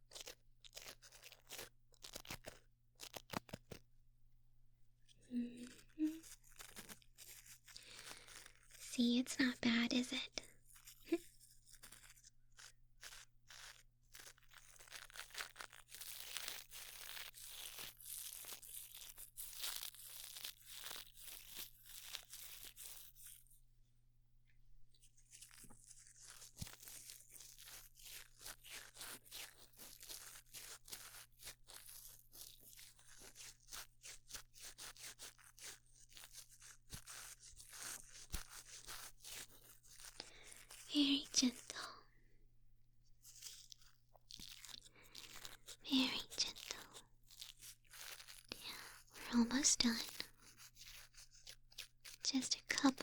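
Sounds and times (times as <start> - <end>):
scratching and crackling scrapes: 0.0 - 3.8, 5.1 - 23.6, 25.0 - 42.0, 43.2 - 53.0.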